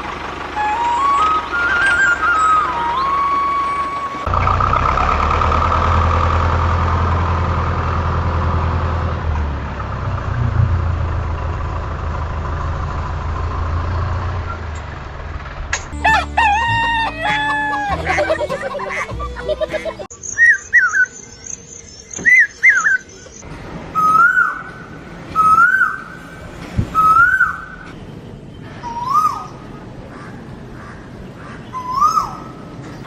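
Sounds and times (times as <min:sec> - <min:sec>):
rooster crowing: 0:16.0 - 0:18.7.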